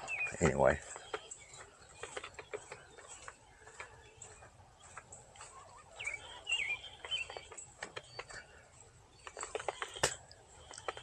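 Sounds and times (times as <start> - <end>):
bird chirping: 0.0 - 11.0
small clicks and taps: 0.4 - 5.6, 7.0 - 8.6, 9.2 - 11.0.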